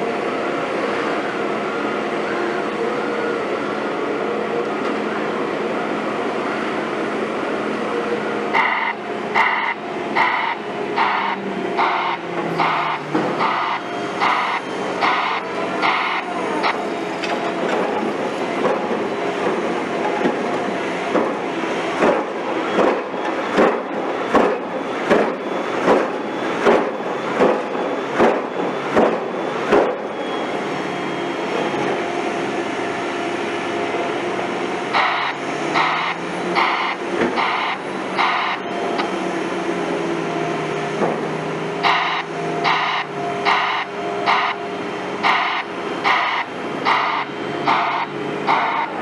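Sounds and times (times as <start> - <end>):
heavy construction machinery droning: 0.0 - 49.0
sharp machinery pulses: 8.5 - 19.6, 34.9 - 39.2, 41.8 - 49.0
regular machinery knocks: 21.1 - 21.4, 22.0 - 30.1.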